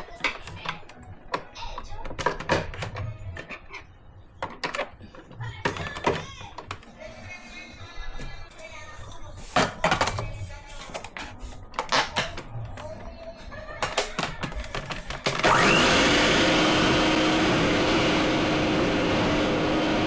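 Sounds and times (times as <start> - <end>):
electric mixer motor whining: 15.4 - 20.0.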